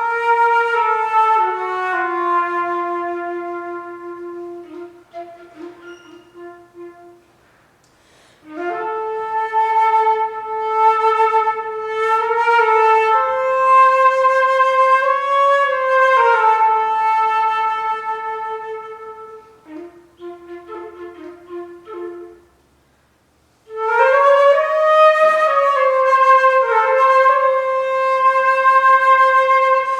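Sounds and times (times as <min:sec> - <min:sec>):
flute playing long notes: 0:00.0 - 0:07.3, 0:08.4 - 0:22.6, 0:23.7 - 0:29.9
person breathing in: 0:07.9 - 0:08.5.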